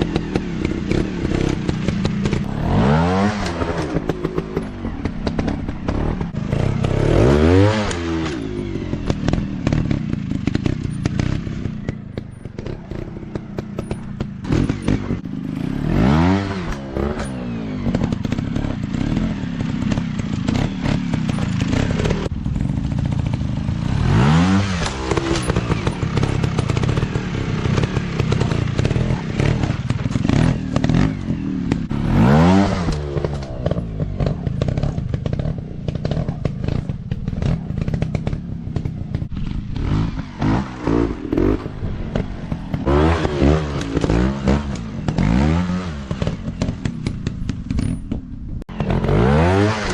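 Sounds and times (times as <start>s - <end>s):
dirt bike engines revving: 0.0s - 49.9s
steady rattle: 7.9s - 15.4s, 24.8s - 32.0s, 46.0s - 48.9s.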